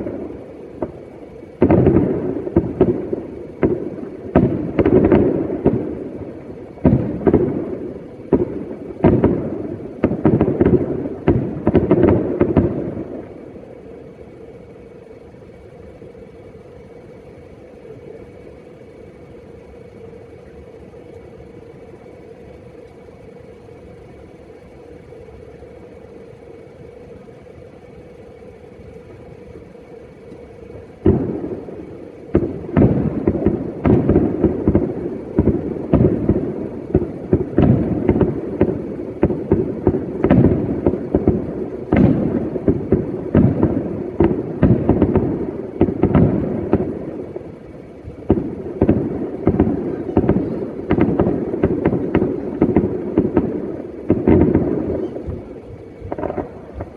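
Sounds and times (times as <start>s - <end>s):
fireworks bangs with echoes: 0.0s - 15.2s, 27.9s - 56.9s.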